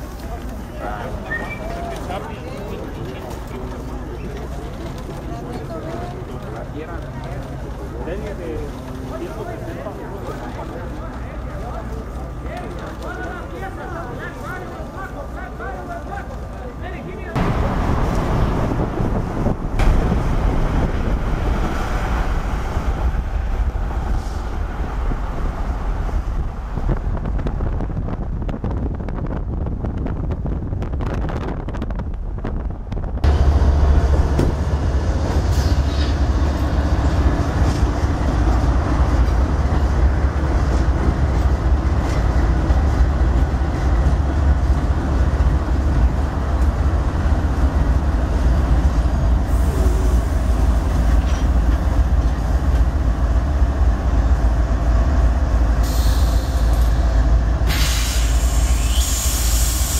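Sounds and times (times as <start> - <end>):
diesel locomotive engine rumble: 0.0 - 59.9
wheels on rail: 0.0 - 59.9
wind noise on microphone: 17.4 - 59.9.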